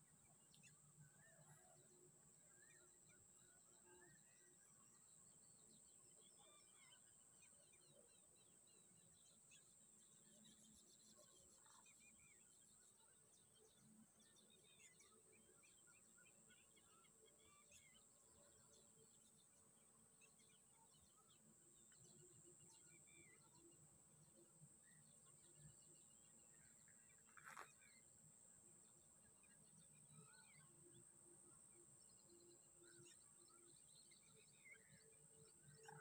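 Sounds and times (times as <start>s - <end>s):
small bird chirps: 24.9s - 28.0s.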